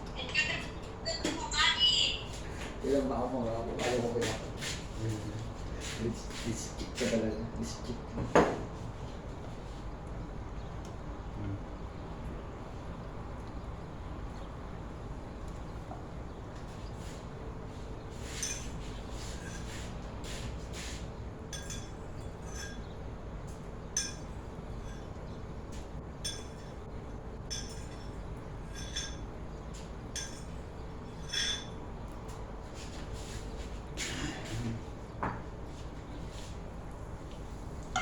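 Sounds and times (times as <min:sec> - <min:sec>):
steady low hum: 0:00.0 - 0:38.0
kitchenware clinking: 0:21.5 - 0:22.9, 0:23.9 - 0:25.1, 0:27.5 - 0:29.3, 0:31.1 - 0:31.8.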